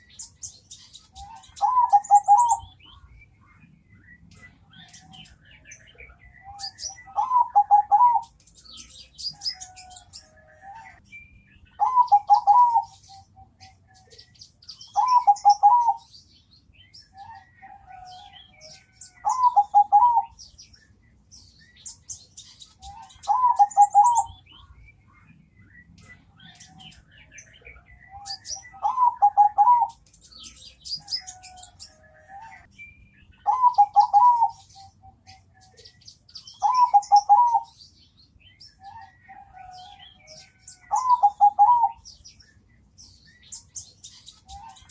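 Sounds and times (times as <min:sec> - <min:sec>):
small birds chirping: 0:00.0 - 0:44.9
dove cooing: 0:01.0 - 0:02.8, 0:05.9 - 0:08.4, 0:11.8 - 0:14.2, 0:15.0 - 0:16.1, 0:17.2 - 0:20.4, 0:22.8 - 0:24.4, 0:27.6 - 0:30.0, 0:33.4 - 0:35.5, 0:36.6 - 0:37.8, 0:38.8 - 0:42.0.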